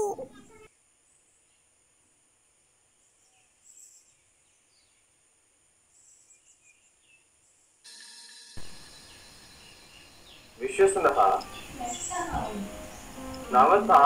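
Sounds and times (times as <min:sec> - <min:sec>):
faint bird chirps: 0:00.0 - 0:01.8, 0:05.9 - 0:13.5
steady hiss: 0:08.6 - 0:14.0.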